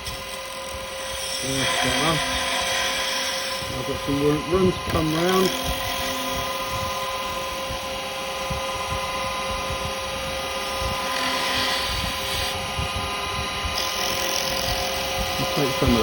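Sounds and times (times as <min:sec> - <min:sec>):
chisel cutting wood hiss: 0:00.0 - 0:07.3, 0:10.9 - 0:12.6
wood lathe motor whine: 0:00.0 - 0:16.0.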